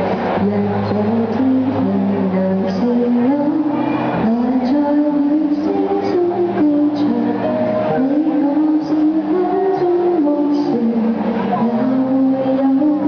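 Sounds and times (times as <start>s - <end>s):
woman singing pop ballad: 0.4s - 13.0s.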